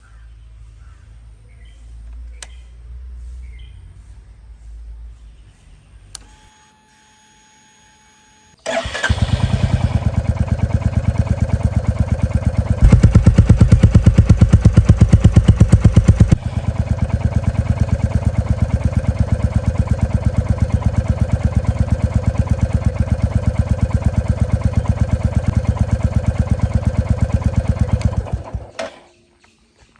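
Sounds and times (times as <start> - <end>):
motorcycle engine running: 8.7 - 28.8.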